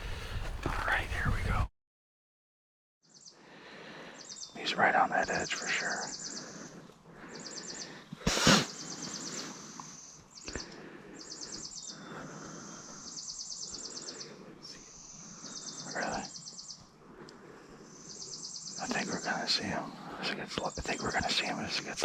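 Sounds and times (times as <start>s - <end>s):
low background rustle: 0.0s - 1.7s.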